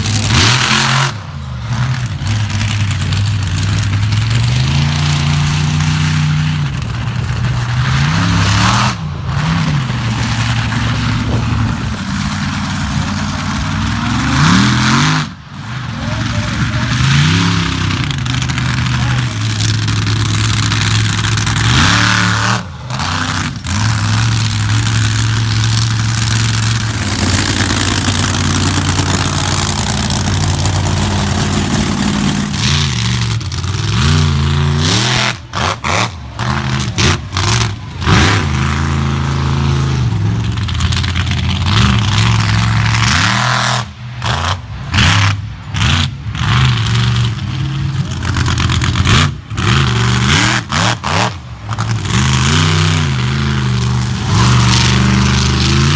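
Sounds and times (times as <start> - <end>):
truck engine revving: 0.0 - 55.9.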